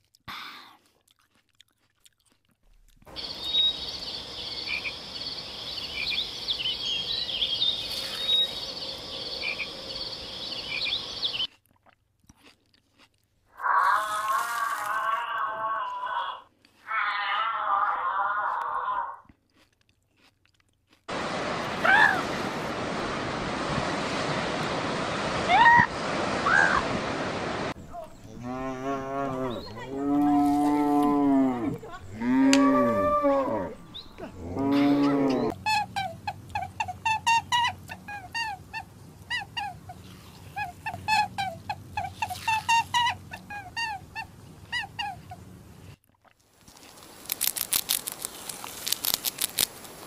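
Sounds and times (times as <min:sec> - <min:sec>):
outdoor noise: 0:00.0 - 0:50.0
high chirping calls: 0:03.1 - 0:11.5
cattle mooing: 0:28.2 - 0:35.5.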